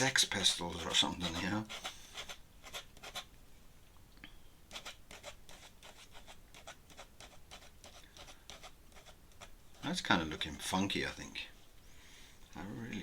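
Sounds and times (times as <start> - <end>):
pen nib scratching on paper: 0.8 - 3.3, 4.7 - 10.0.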